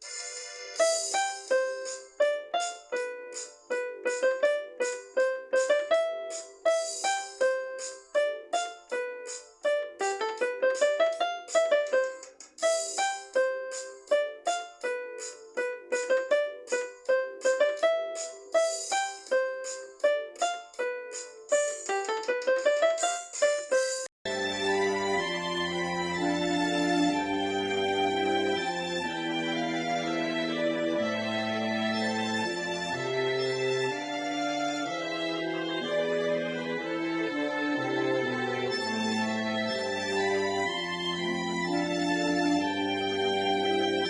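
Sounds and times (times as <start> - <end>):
bright rattling accent: 0.0 - 28.7.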